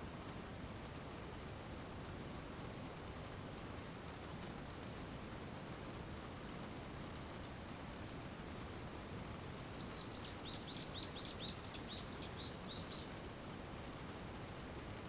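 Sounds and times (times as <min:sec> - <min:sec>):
rain hiss: 0:08.5 - 0:14.9
songbird chirping: 0:09.8 - 0:13.3.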